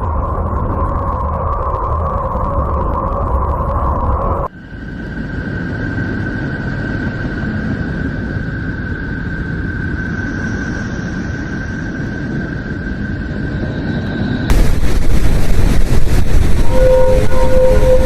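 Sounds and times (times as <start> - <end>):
low rumbling noise: 0.0 - 18.0.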